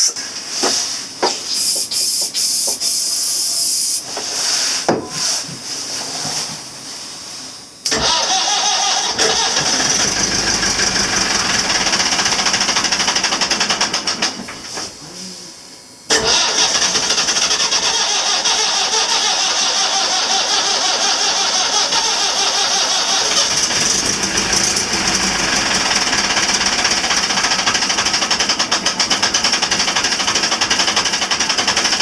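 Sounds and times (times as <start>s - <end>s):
spray hissing: 1.5s - 4.7s, 21.9s - 28.4s
diesel engine cranking: 7.9s - 14.5s, 16.1s - 32.0s.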